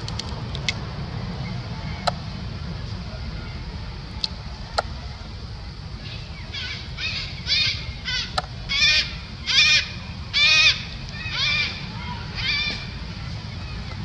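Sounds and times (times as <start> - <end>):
steady low rumble: 0.0 - 14.0
monkey high-pitched calls: 6.0 - 13.0.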